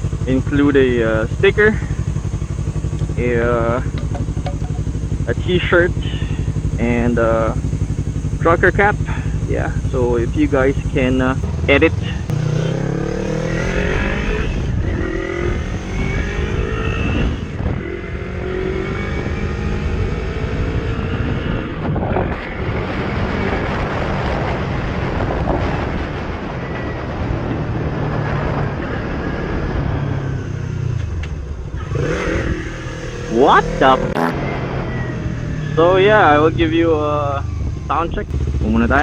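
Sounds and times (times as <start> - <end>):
motorcycle engine accelerating: 0.0 - 39.0
wind noise on microphone: 11.4 - 32.8.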